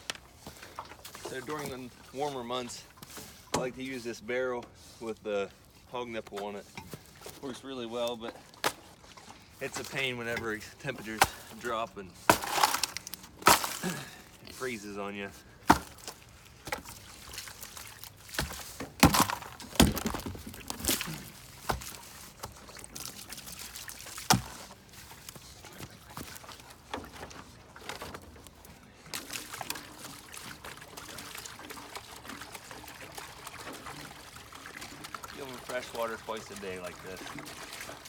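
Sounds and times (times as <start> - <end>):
containers knocking and clunking: 18.3 - 22.7
water pouring into bowl: 29.2 - 38.0.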